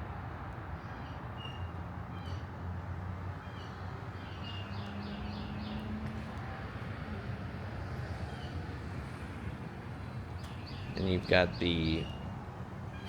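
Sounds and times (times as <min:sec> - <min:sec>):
small birds chirping: 0:03.4 - 0:06.0, 0:10.2 - 0:13.0.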